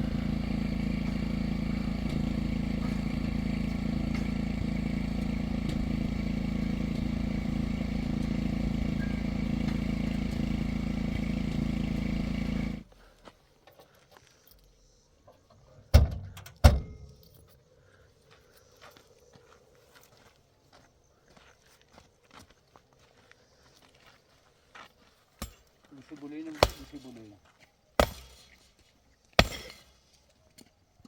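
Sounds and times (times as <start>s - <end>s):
engine running: 0.0s - 12.9s.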